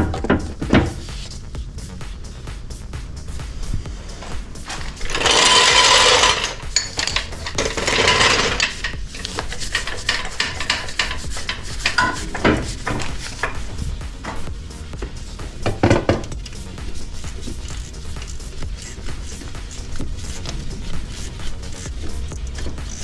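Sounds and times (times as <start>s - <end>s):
tools and parts knocking: 0.0s - 1.0s, 4.7s - 16.6s
loud rasping scrapes: 4.1s - 13.9s, 16.3s - 23.0s.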